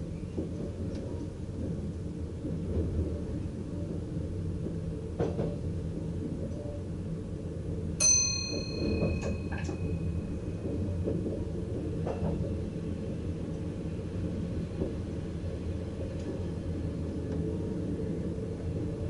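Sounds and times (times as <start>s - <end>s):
train cab rumble: 0.0s - 19.0s
sharp ringing ding: 8.0s - 10.0s.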